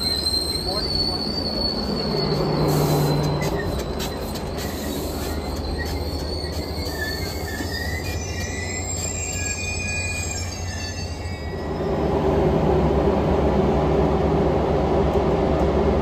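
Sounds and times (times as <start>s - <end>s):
rail clicks: 0.0s - 11.3s, 14.8s - 16.0s
train wheels squealing: 0.0s - 12.3s
train low rumble: 0.0s - 16.0s.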